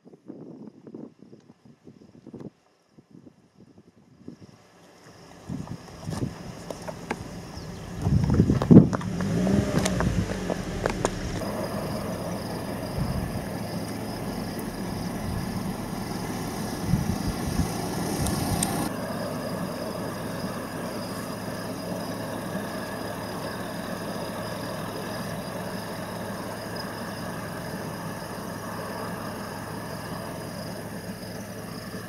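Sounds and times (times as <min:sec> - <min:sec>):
vehicle engine idling: 0:04.4 - 0:32.0
low rumbles: 0:05.3 - 0:32.0.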